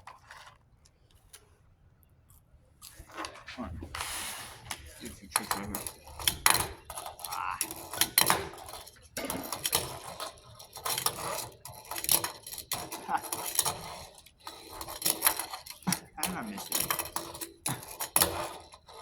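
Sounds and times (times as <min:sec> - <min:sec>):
tiny wheels rolling: 0:04.1 - 0:19.0
fingerboard clicking and clacking: 0:04.8 - 0:19.0.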